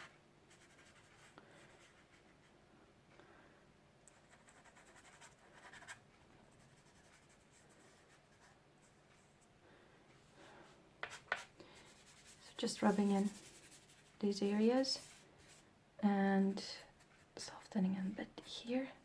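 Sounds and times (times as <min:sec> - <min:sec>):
pastel scratching on paper: 0:06.6 - 0:08.6, 0:11.0 - 0:14.2, 0:15.0 - 0:15.6.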